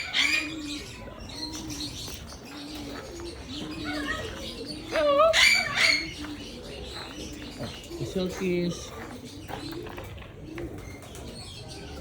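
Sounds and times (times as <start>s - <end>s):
doves cooing: 0.0s - 12.0s
small birds chirping: 0.0s - 12.0s.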